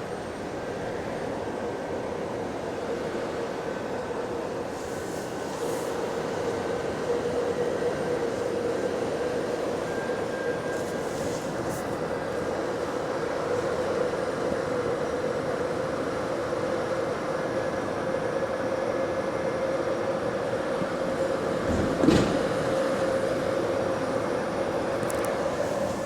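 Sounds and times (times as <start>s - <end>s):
bus running hum: 0.0s - 26.0s.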